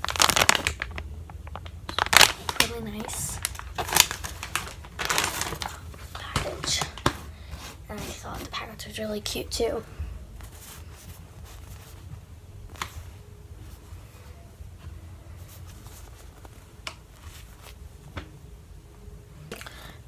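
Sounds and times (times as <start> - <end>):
plastic packaging rustling: 0.0 - 8.8, 10.4 - 18.1.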